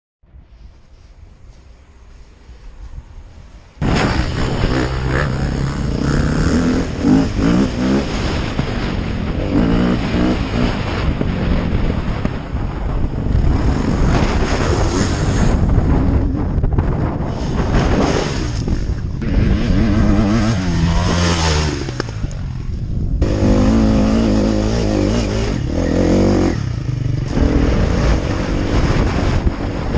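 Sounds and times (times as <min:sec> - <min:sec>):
wind noise on microphone: 0:00.2 - 0:29.9
dirt bike engine revving: 0:03.8 - 0:12.4, 0:17.6 - 0:29.9.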